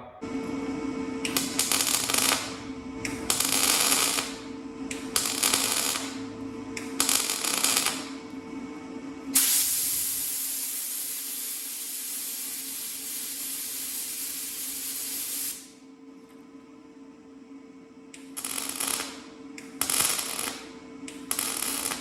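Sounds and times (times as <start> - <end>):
steady low hum: 0.0 - 10.6
aerosol spray can hissing: 9.4 - 15.6.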